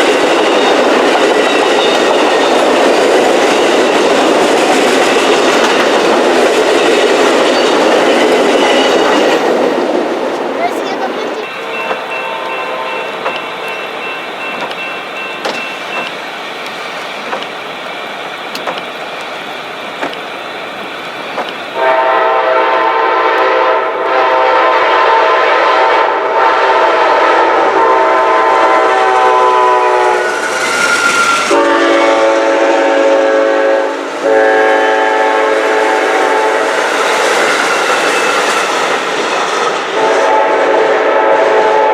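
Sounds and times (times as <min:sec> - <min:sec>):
train horn blasts: 0:11.4 - 0:16.2, 0:21.4 - 0:36.8, 0:39.9 - 0:41.9.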